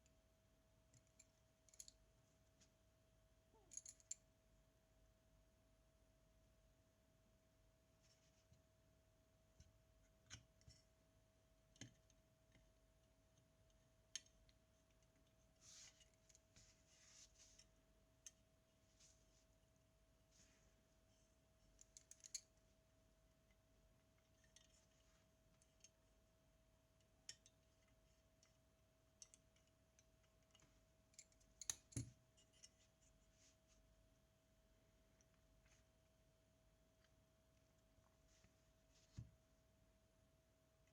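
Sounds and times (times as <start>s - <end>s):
faint steady hum: 0.0s - 40.9s
faint steady tone: 0.0s - 40.9s
small tools clicking and tapping: 27.2s - 28.5s, 29.2s - 32.8s.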